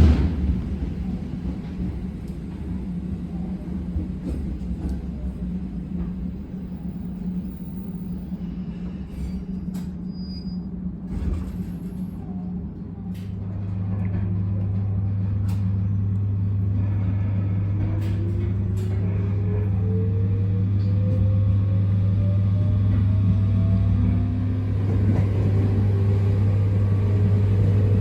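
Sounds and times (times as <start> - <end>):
electric train rumble and hum: 0.0 - 28.0
loud low hum: 12.9 - 28.0.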